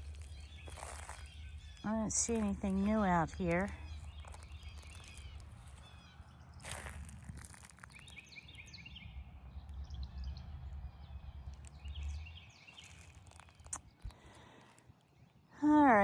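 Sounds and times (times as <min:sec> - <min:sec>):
small birds chirping: 0:00.0 - 0:16.0
steady low rumble: 0:08.7 - 0:12.7.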